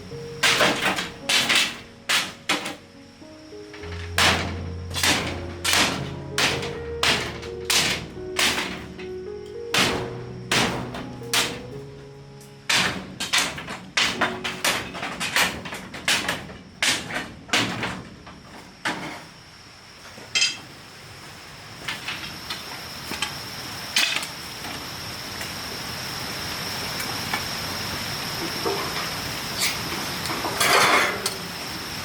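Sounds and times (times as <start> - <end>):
high-pitched whine: 0.0 - 12.7
fast sharp knocks: 4.1 - 11.8.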